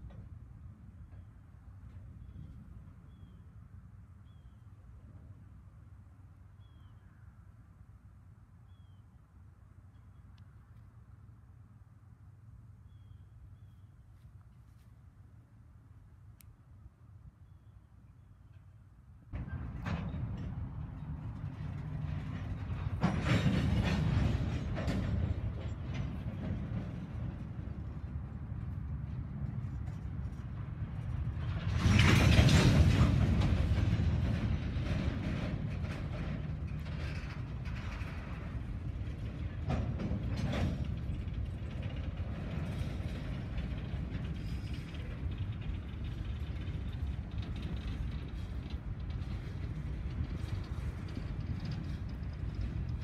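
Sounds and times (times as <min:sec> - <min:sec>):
hopper cars rumbling on rails: 0:18.4 - 0:53.0.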